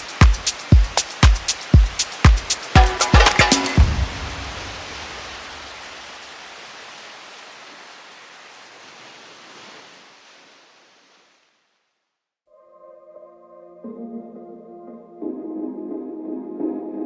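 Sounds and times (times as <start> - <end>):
hiss-like noise: 0.0 - 12.0
music ending: 2.8 - 4.6.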